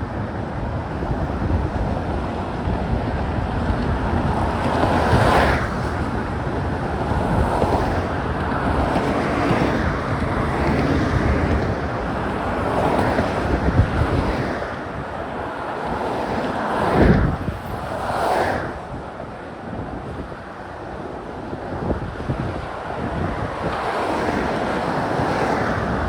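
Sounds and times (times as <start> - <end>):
road traffic: 0.0 - 26.0
wind buffeting microphone: 0.0 - 26.0.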